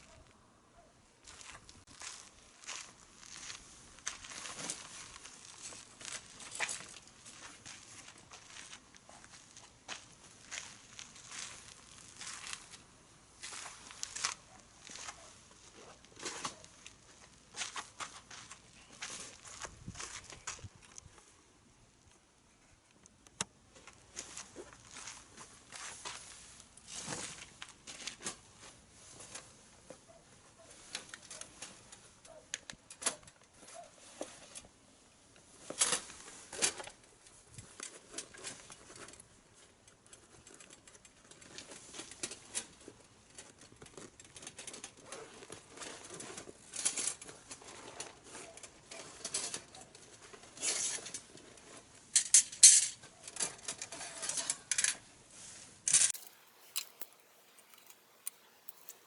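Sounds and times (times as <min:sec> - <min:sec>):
wood crackling in a fire: 0:01.2 - 0:21.3, 0:56.0 - 0:59.0.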